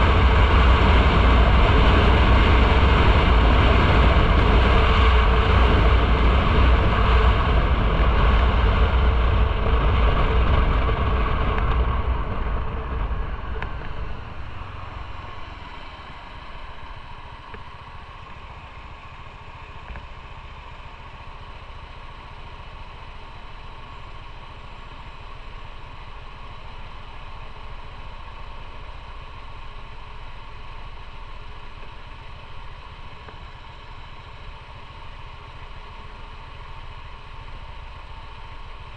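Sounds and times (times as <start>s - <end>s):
wind noise: 0.0s - 18.8s
motorcycle engine: 0.0s - 38.9s
motorcycle engine idling: 0.0s - 38.9s.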